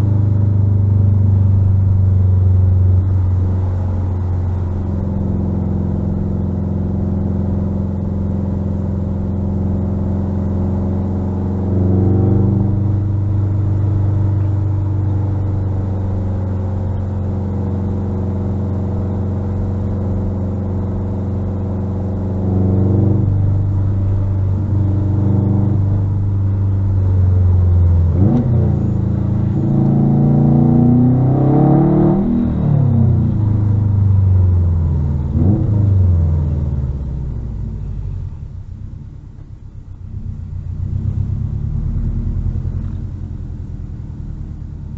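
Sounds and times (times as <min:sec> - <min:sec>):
car engine revving: 0:00.0 - 0:44.9.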